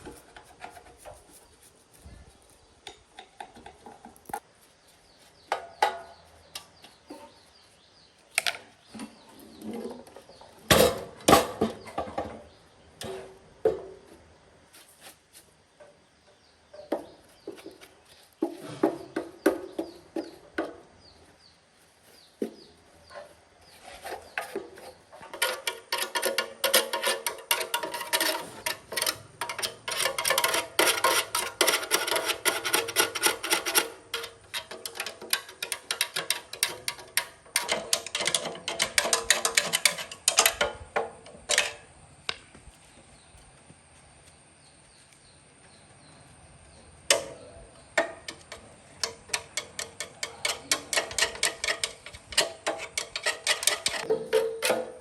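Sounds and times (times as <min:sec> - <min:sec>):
clicks and scrapes of metal parts: 0:00.0 - 0:01.7, 0:23.0 - 0:41.9, 0:47.1 - 0:55.0.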